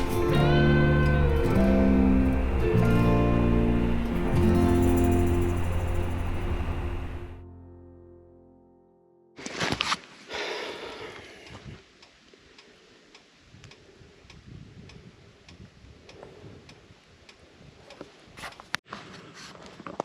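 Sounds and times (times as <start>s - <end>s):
faint breathing: 10.2s - 13.1s.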